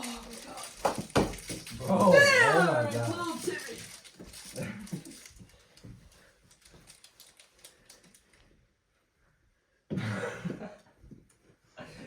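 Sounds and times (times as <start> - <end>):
hockey sticks tapping ball: 0.0 - 3.8.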